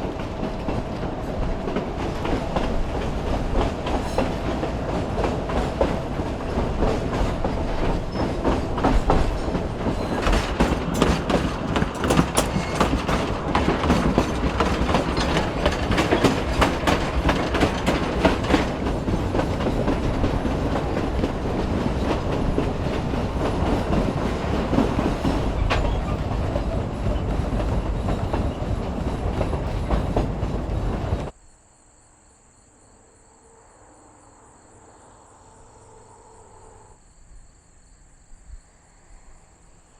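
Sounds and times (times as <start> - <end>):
railroad cars rumbling and rattling: 0.0 - 31.4
wheel clicks over rail joints: 6.8 - 26.3
insect chirping: 31.1 - 39.9.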